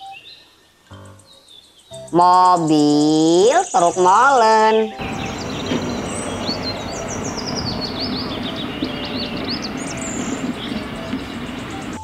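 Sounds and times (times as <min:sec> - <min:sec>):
small bird chirping: 0:00.0 - 0:12.0
diesel engine running: 0:05.0 - 0:12.0.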